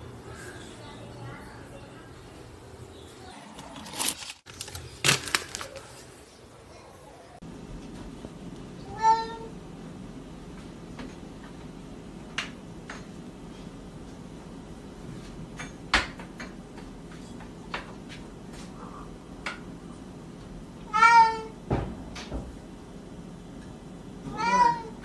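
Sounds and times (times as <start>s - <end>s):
cat meowing: 8.8s - 9.5s, 20.9s - 21.6s, 24.3s - 25.0s.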